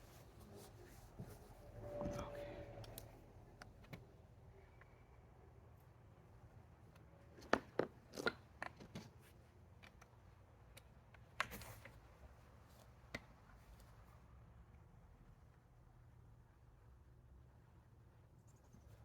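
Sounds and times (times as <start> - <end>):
low hum: 1.5 - 3.6.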